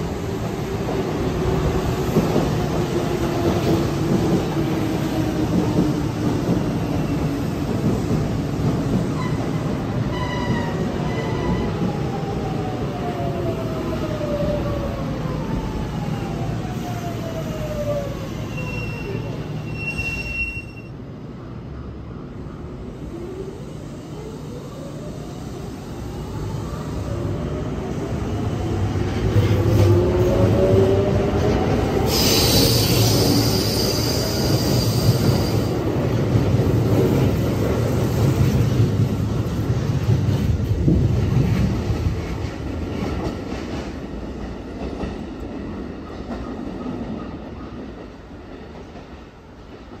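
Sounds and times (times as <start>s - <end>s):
train wheel rumble and squeal: 5.1s - 12.3s, 14.1s - 21.0s, 29.3s - 36.1s
train hiss: 31.9s - 35.9s.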